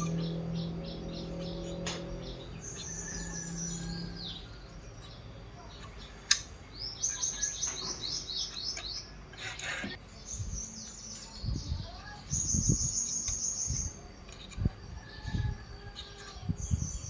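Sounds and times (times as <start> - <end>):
bird chirping trills: 0.0 - 17.0
sharp click: 5.8 - 6.6.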